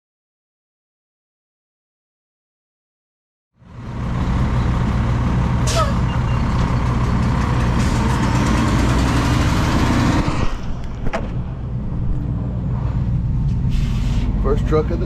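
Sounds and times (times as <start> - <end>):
diesel engine drone: 3.6 - 15.0.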